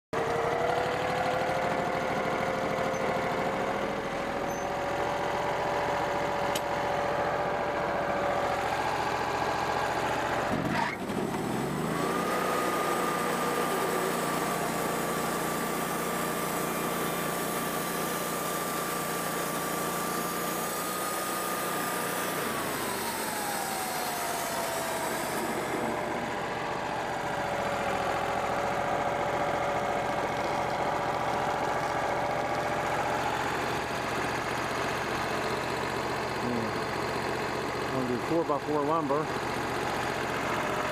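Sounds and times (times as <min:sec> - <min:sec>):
sawmill engine idling and revving: 0:00.2 - 0:40.9.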